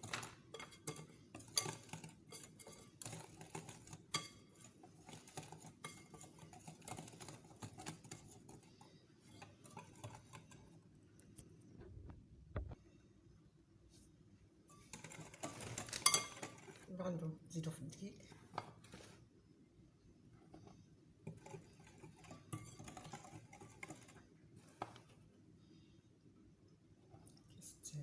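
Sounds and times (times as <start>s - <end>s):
utensil scraping mixing bowl: 0.0s - 10.9s, 14.7s - 17.0s, 20.5s - 25.3s.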